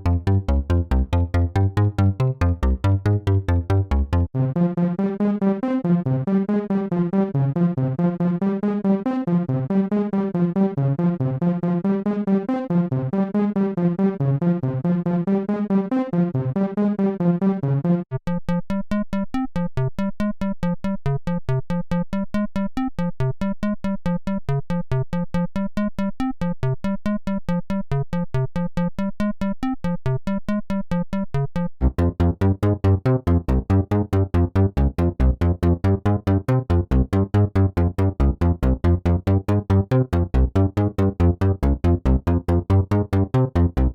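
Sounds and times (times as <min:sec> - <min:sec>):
synthesizer fast note runs: 0:00.0 - 0:04.3, 0:31.8 - 0:43.9.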